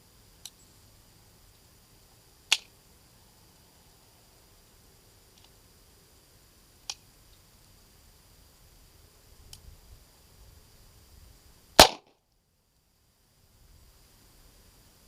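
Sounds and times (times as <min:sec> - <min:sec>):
sharp click: 0:02.5 - 0:02.7
pistol shot: 0:11.8 - 0:12.1.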